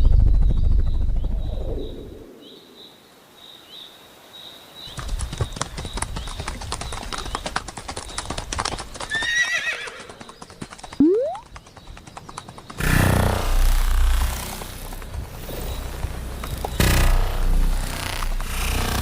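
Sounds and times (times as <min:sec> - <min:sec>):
horse hooves galloping: 0:04.9 - 0:18.8
horse whinnying: 0:09.1 - 0:10.1.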